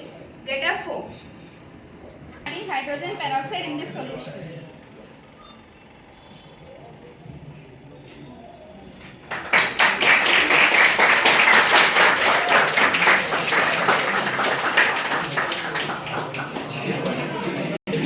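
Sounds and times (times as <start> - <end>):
people applauding: 9.0 - 18.0.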